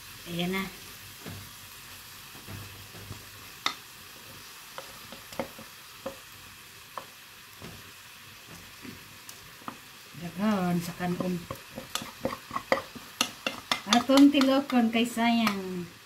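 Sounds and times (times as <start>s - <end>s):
frying sizzle: 0.0s - 16.0s
metal pot knocking against pan: 11.1s - 15.6s.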